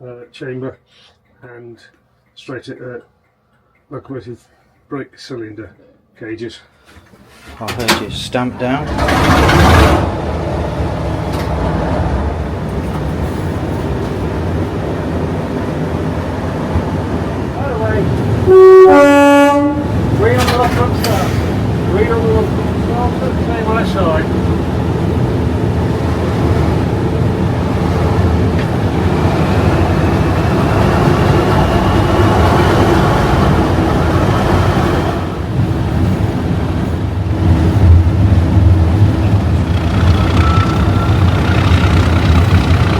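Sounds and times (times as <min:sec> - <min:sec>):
diesel locomotive engine running: 0:07.7 - 0:42.9
diesel engine idling: 0:38.5 - 0:42.9
turbocharger whistle rising: 0:39.8 - 0:42.7.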